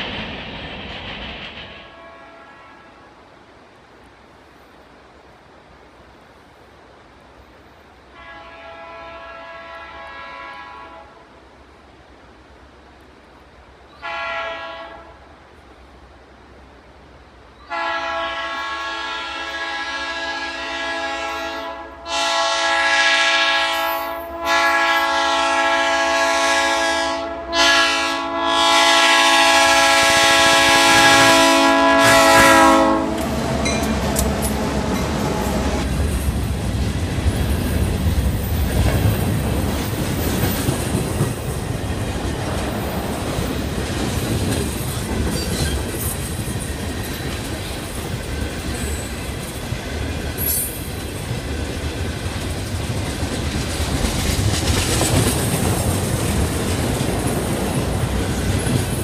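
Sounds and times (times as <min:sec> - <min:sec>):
train cars rumbling and clacking: 0:00.0 - 0:02.6, 0:29.2 - 0:59.0
locomotive air horn blasts: 0:01.9 - 0:03.1, 0:08.1 - 0:11.2, 0:14.0 - 0:15.2, 0:17.7 - 0:35.8.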